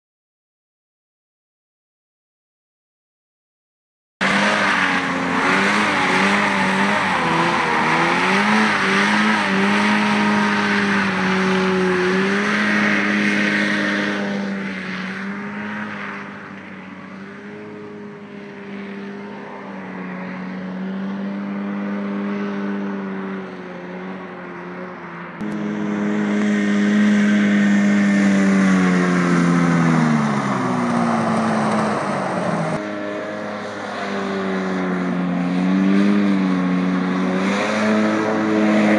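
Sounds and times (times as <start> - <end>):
hovercraft engine and fan: 21.3 - 38.9.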